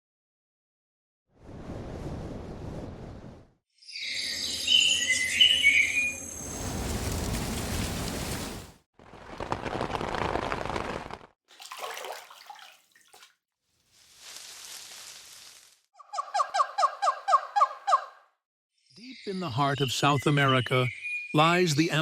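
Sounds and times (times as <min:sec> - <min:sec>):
birds chirping: 0:18.9 - 0:22.0.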